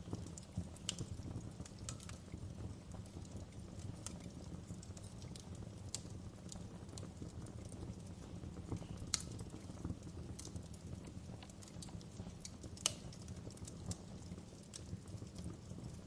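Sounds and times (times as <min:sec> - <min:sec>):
loud fire snaps: 0:00.0 - 0:16.0
wood fire crackling: 0:00.0 - 0:16.0.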